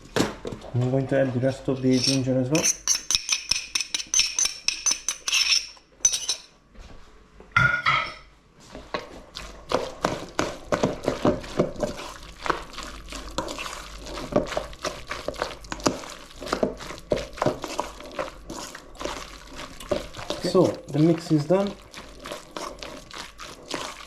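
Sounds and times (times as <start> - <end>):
stirring thick batter in bowl: 0.4 - 6.5, 8.6 - 24.0
utensil clinking against bowl: 1.8 - 6.5.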